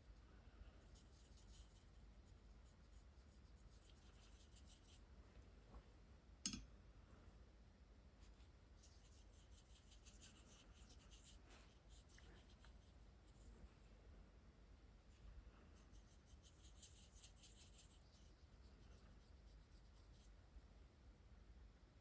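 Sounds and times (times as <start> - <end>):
marker scratching on paper: 8.8 - 13.5, 15.8 - 20.3.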